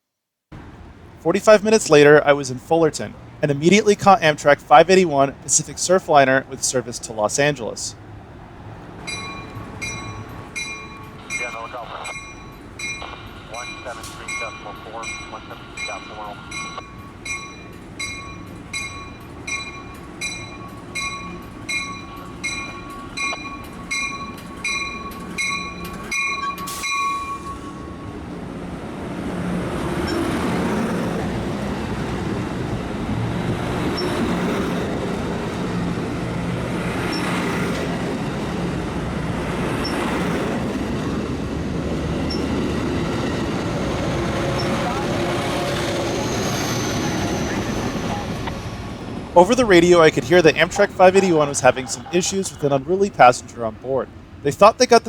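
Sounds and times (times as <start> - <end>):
passenger train rumbling past: 0.6 - 55.0
warning bell ringing: 9.0 - 28.0.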